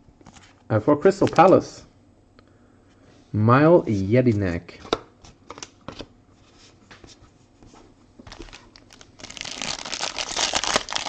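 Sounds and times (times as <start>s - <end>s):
wrapper crinkling and tearing: 8.3s - 11.0s.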